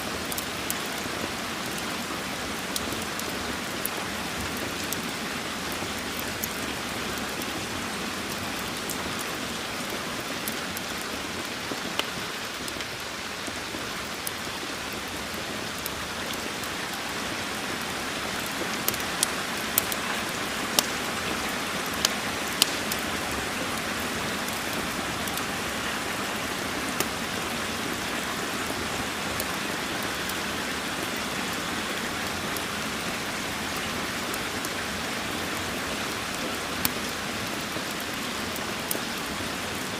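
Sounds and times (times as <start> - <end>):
steady rain: 0.0 - 39.9
sharp ticks: 22.6 - 22.8.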